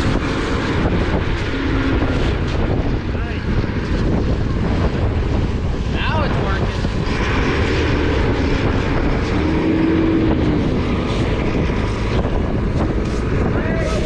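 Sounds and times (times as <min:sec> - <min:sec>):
wind buffeting microphone: 0:00.0 - 0:14.0
person shouting: 0:13.5 - 0:14.0.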